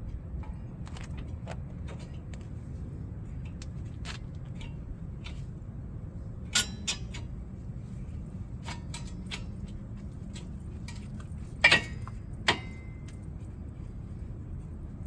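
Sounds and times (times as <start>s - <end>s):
low steady hum: 0.0s - 15.0s
metal brake parts clinking: 6.5s - 7.4s, 8.6s - 13.6s.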